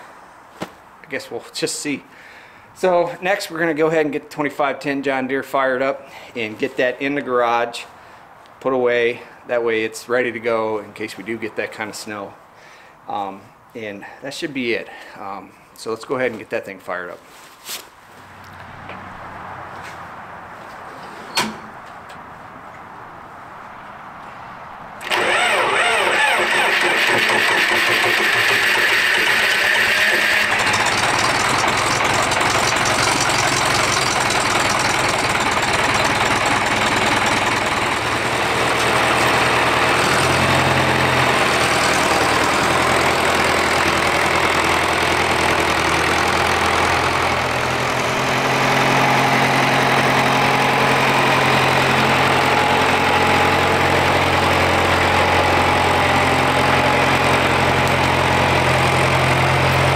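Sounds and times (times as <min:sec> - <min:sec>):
tractor engine idling: 0:25.0 - 0:59.9.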